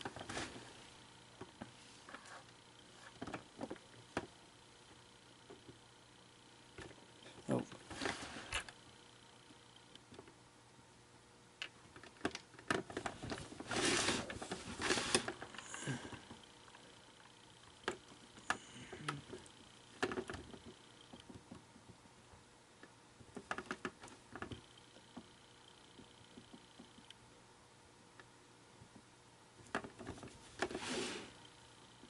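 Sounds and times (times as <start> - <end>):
scraping on plastic: 12.6 - 16.4.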